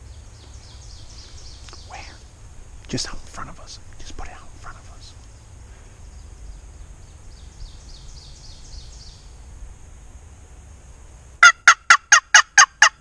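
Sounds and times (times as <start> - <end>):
low steady rumble: 0.0 - 13.0
songbird chirping: 0.0 - 13.0
turkey gobble: 11.4 - 13.0.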